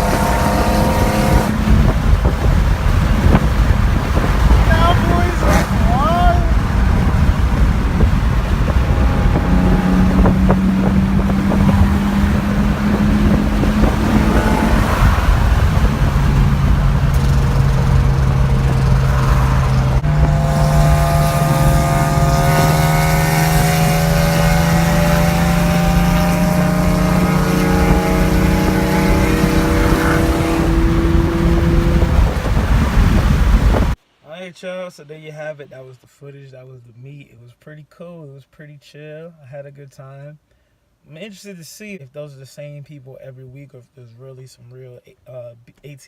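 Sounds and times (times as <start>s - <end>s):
car engine: 0.0s - 34.0s
road and wind rumble: 0.0s - 34.2s.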